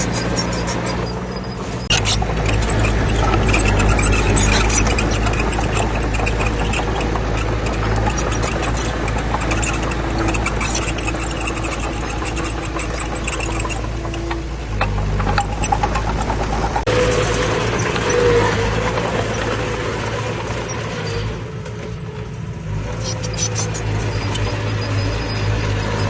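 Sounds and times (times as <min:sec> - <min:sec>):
metallic clatter and rattling: 0:00.0 - 0:19.6
heavy diesel engine rumbling: 0:00.0 - 0:26.0.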